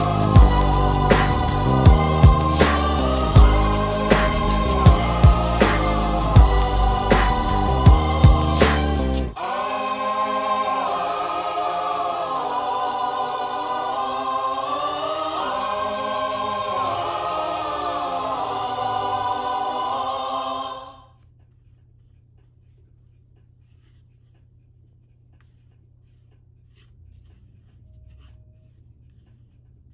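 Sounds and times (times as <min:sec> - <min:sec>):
choir holding long chords: 0:00.0 - 0:21.1.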